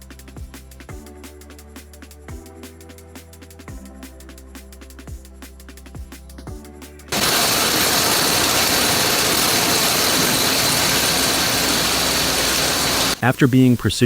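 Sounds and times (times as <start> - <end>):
sawmill machinery running: 7.1 - 13.8.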